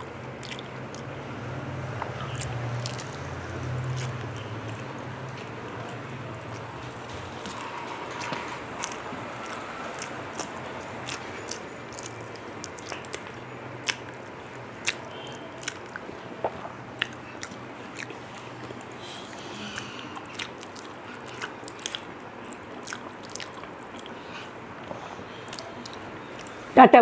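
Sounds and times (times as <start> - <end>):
person chewing food: 0.0 - 1.2, 1.8 - 26.7.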